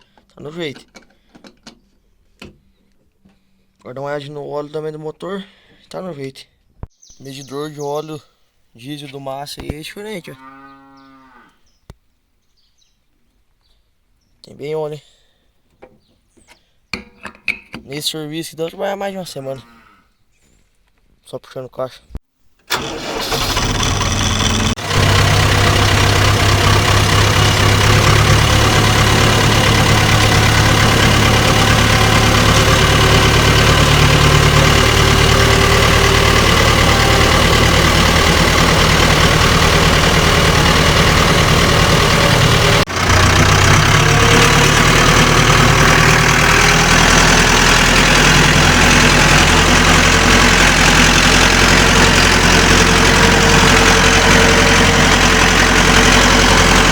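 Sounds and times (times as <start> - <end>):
tractor diesel engine running: 22.7 - 56.9.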